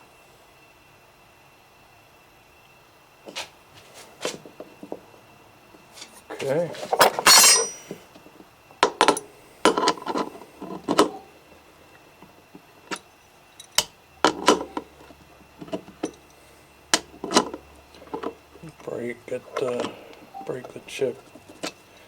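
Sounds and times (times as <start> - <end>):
tool handling: 6.8 - 8.0.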